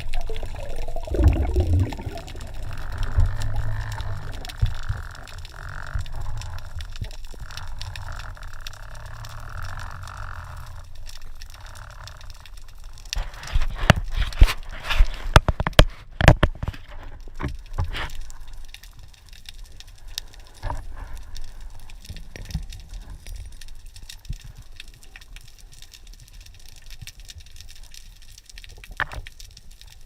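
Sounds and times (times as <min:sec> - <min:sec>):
underwater clicks and knocks: 0:00.0 - 0:09.8, 0:10.6 - 0:18.2, 0:28.7 - 0:29.4
low rumble of water: 0:00.0 - 0:30.0.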